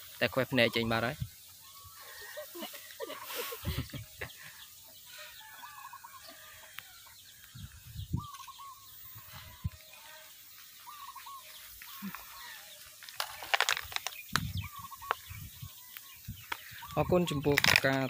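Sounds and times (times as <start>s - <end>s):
birds calling: 0.0s - 18.0s
rustling: 10.0s - 14.3s.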